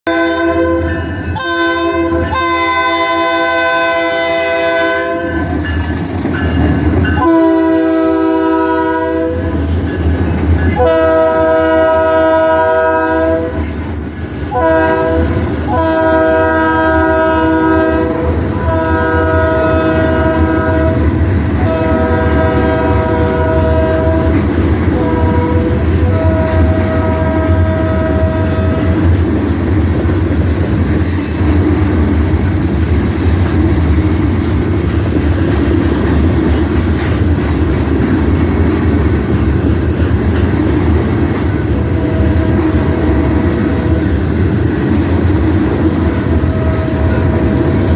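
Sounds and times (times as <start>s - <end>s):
locomotive air horn blasts: 0.0s - 5.4s, 7.2s - 9.6s, 10.7s - 13.7s, 14.5s - 29.1s, 41.7s - 44.1s, 46.2s - 47.9s.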